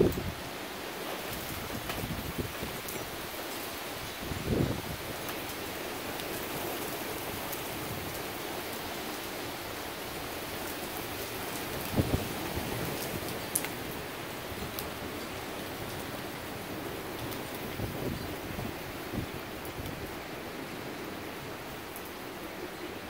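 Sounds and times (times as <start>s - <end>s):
steady heavy rain: 0.0s - 23.0s
raindrops ticking: 13.0s - 16.4s.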